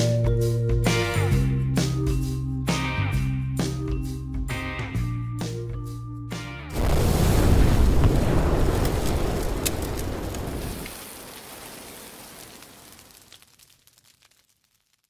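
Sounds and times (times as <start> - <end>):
low fire rumble: 6.7 - 15.0
wood fire crackling: 6.7 - 15.0.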